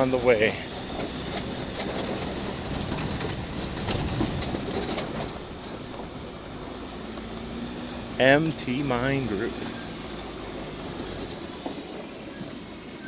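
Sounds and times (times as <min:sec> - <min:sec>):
clatter and rattle: 0:00.0 - 0:07.4
truck engine and road rumble: 0:00.0 - 0:13.0.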